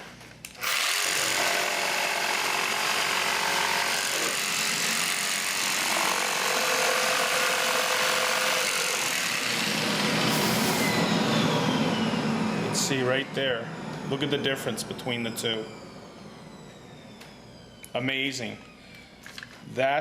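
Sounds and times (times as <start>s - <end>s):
jigsaw cutting: 0.6s - 12.8s.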